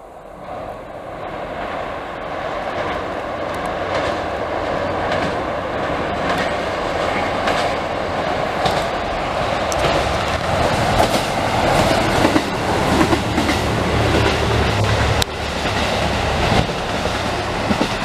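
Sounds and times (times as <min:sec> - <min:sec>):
diesel train rumble: 0:00.0 - 0:18.0
wheels clicking over rail joints: 0:02.6 - 0:18.0.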